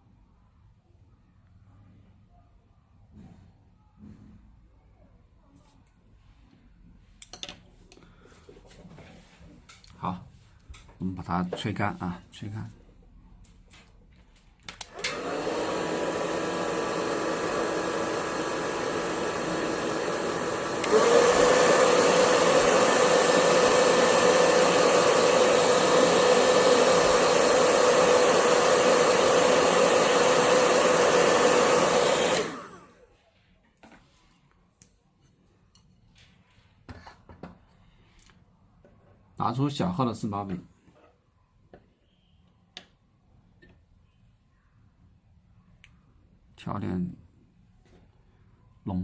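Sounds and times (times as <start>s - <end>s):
hair dryer blowing: 14.8s - 33.1s.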